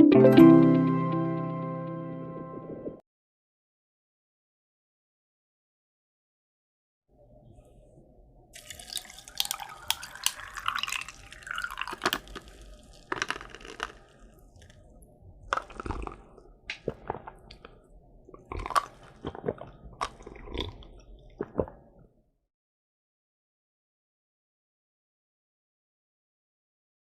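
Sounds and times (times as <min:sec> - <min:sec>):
wet chewing: 0:08.6 - 0:14.8, 0:15.5 - 0:21.9
crunchy food being chewed: 0:08.6 - 0:21.9.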